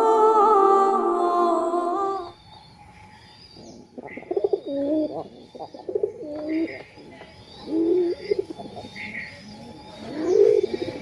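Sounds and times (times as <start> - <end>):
low bird cooing: 0.0 - 2.4, 4.0 - 6.8, 7.6 - 11.0.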